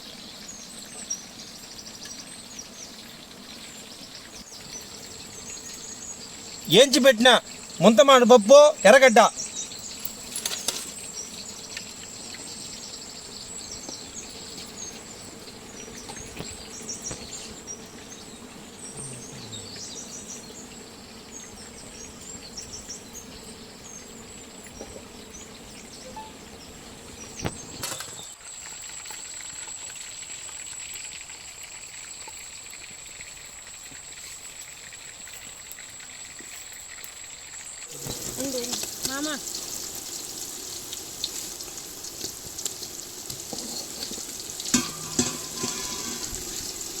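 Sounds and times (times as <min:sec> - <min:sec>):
bird chirps: 0:00.0 - 0:28.3.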